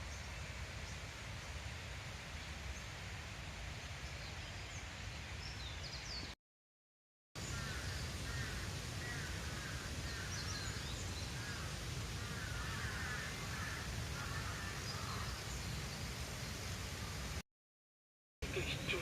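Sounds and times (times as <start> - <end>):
birds chirping: 7.4 - 17.4, 18.4 - 19.0.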